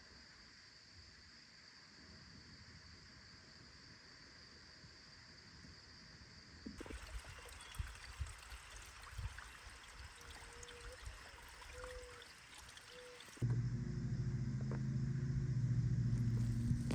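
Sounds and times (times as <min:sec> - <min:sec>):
water trickling and splashing: 0:06.8 - 0:13.4.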